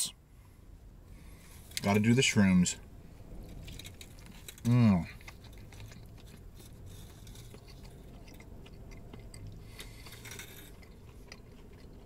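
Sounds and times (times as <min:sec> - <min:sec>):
low steady hum: 0:00.0 - 0:12.0
man chewing food: 0:03.4 - 0:12.0.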